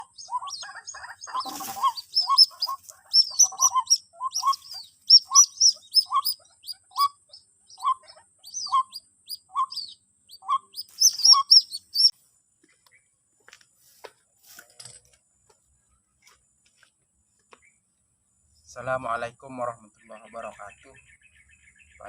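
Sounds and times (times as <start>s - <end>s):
low bird notes: 0.0s - 12.1s
high thin chirps: 1.2s - 12.1s.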